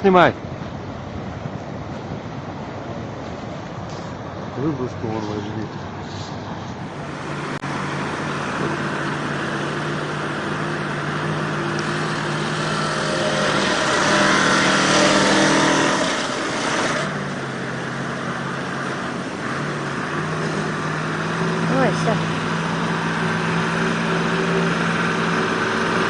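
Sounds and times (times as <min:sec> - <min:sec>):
truck engine revving: 0:06.8 - 0:26.0.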